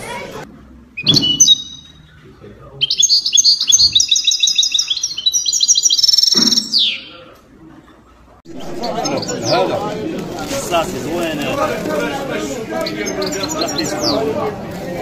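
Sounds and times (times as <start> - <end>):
bird chirps and trills: 1.0 - 7.2, 12.8 - 14.3.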